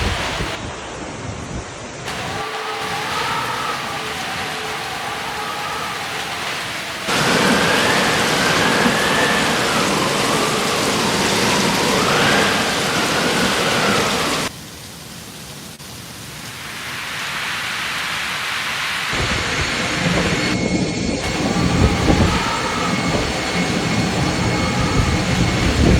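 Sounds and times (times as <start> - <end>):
heavy rain pouring: 0.0 - 0.6, 2.1 - 20.6, 21.2 - 25.9
low thunder rumble: 2.1 - 14.5, 19.2 - 25.9.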